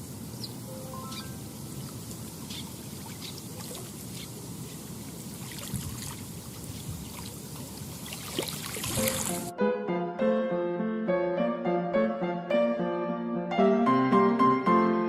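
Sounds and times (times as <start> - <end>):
lake water lapping: 1.7 - 9.5.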